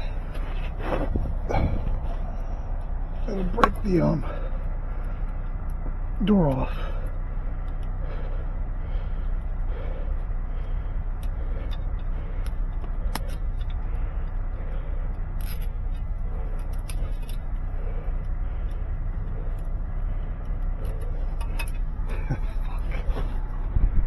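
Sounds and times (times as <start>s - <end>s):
vehicle rumble from inside cab: 0.0s - 24.0s
light clicks and rattles: 9.2s - 23.7s.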